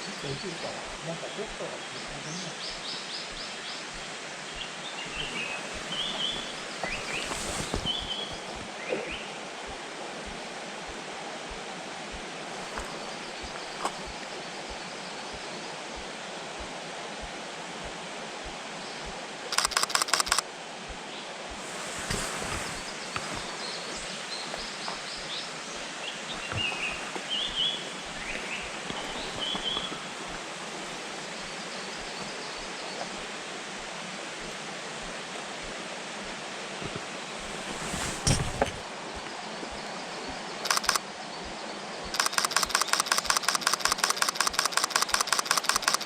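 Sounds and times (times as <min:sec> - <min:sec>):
outdoor background hiss: 0:00.0 - 0:46.0
small bird chirping: 0:01.4 - 0:09.2, 0:19.5 - 0:20.4, 0:40.6 - 0:41.0, 0:42.1 - 0:46.0
camera shutter burst clicks: 0:19.5 - 0:20.4, 0:40.6 - 0:41.0, 0:42.1 - 0:46.0.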